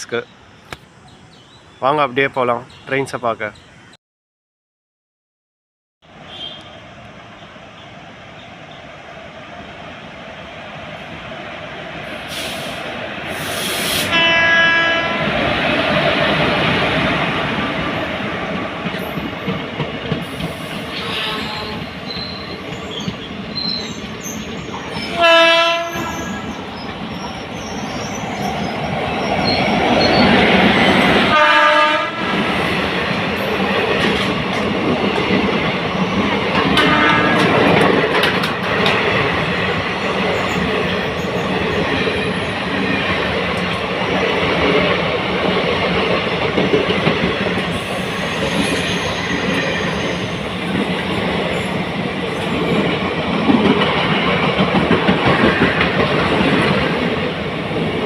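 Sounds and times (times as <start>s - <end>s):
train horn: 6.3s - 6.8s, 14.0s - 15.2s, 20.9s - 22.0s, 25.0s - 26.4s, 31.3s - 32.4s, 36.8s - 37.6s
train wheels rumbling and clacking: 11.9s - 58.0s.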